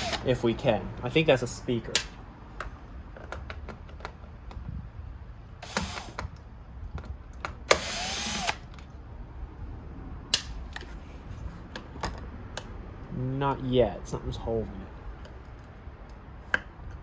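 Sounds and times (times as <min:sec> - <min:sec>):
electric drill running: 0:00.0 - 0:00.3, 0:05.6 - 0:06.2, 0:07.7 - 0:08.6.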